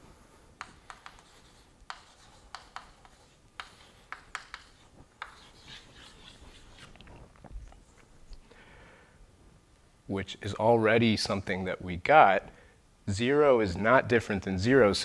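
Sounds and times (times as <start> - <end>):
chalk tapping on chalkboard: 0.6 - 6.9
chalk scratching on chalkboard: 0.6 - 7.0.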